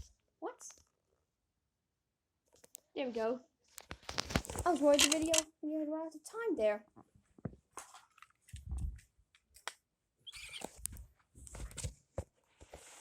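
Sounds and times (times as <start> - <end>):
handling clicks and knocks: 4.4 - 5.5.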